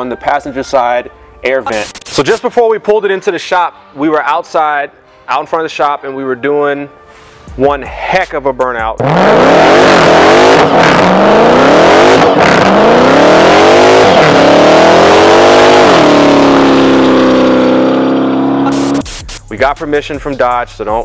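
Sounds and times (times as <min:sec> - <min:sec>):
car engine revving hard: 0:09.0 - 0:19.0.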